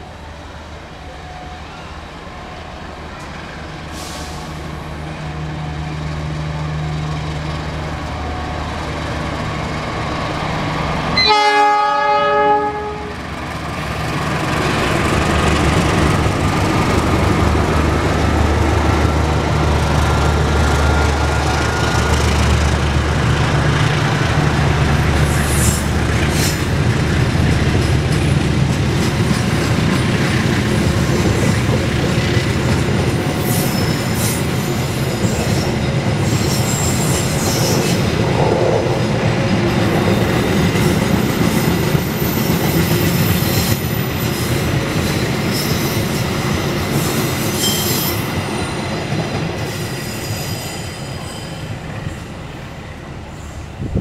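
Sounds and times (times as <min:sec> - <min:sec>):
train wheels rumbling on rails: 0:00.0 - 0:54.0
wheel squeals: 0:47.0 - 0:48.8.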